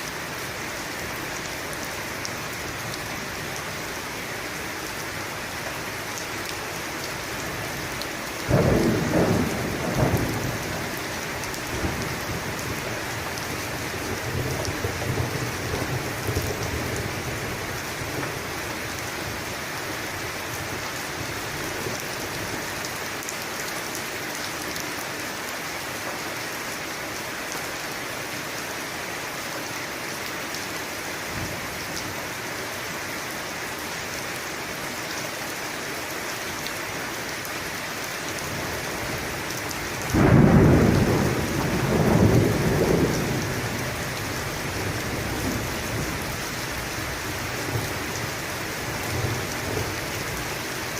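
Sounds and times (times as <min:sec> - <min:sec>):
steady rain falling: 0:00.0 - 0:50.9
thunder rumbling: 0:08.5 - 0:13.0, 0:40.0 - 0:46.3.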